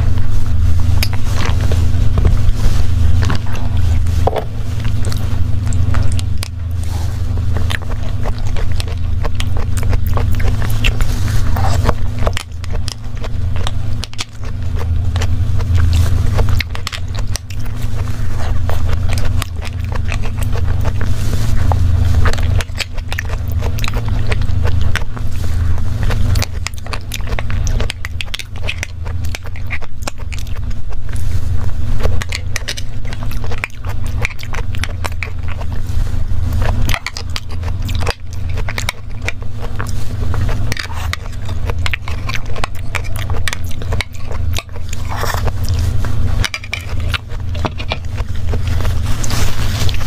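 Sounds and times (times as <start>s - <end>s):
steady low hum: 0.0s - 50.0s
wet chewing and mouth clicks: 0.0s - 50.0s
spoon scraping plastic cup: 38.5s - 50.0s.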